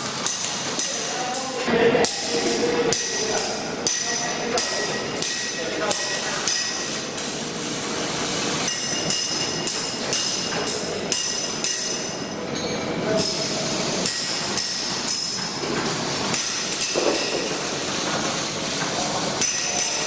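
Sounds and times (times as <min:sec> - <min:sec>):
machinery hissing: 0:13.0 - 0:20.0
metal knocks and clanks: 0:14.1 - 0:20.0.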